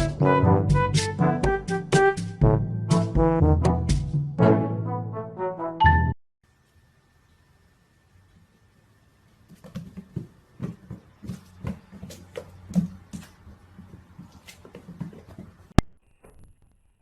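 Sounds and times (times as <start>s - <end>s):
soft tapping and scuffling: 9.3s - 15.8s.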